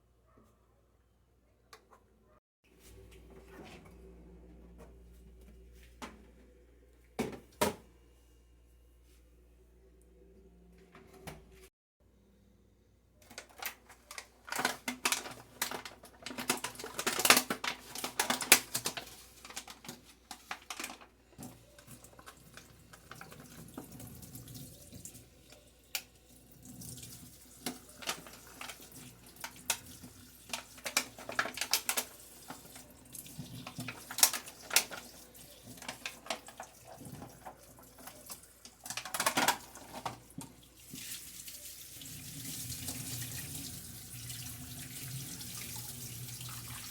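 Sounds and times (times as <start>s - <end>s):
items knocking and clattering: 7.2s - 7.9s, 35.7s - 40.6s
tap water running into sink: 21.4s - 46.9s.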